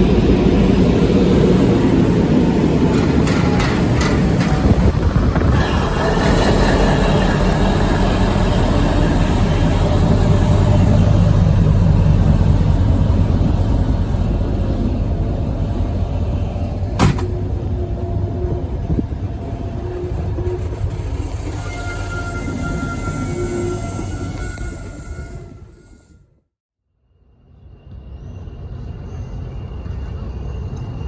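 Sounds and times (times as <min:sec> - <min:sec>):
locomotive engine rumbling: 0:00.0 - 0:25.6.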